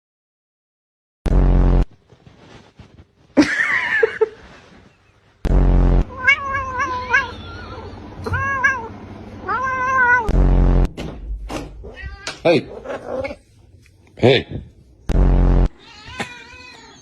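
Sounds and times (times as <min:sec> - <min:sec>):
loud flat buzz: 0:01.3 - 0:02.0, 0:05.4 - 0:06.4, 0:10.2 - 0:11.3, 0:15.1 - 0:15.8
cat meowing: 0:06.1 - 0:10.3, 0:11.8 - 0:13.4, 0:15.8 - 0:17.0.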